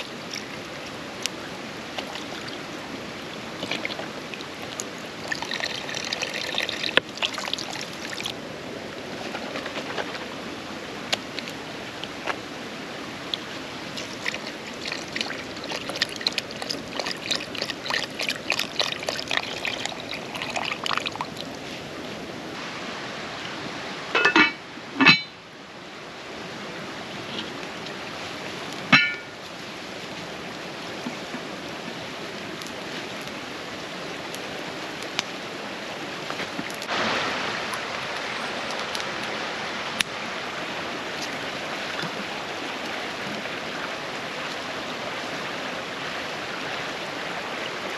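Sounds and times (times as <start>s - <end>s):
creek rushing: 0.0s - 47.9s
sharp ringing knocks: 28.9s - 29.3s.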